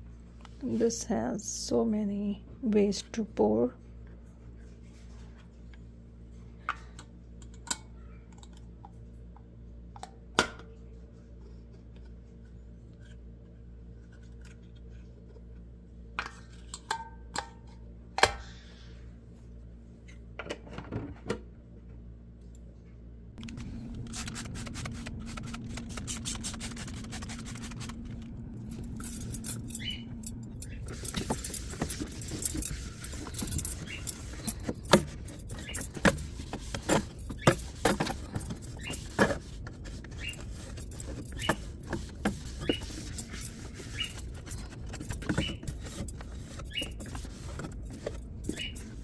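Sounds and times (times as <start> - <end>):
steady low hum: 0.0 - 49.0
plastic jugs being handled: 30.8 - 49.0.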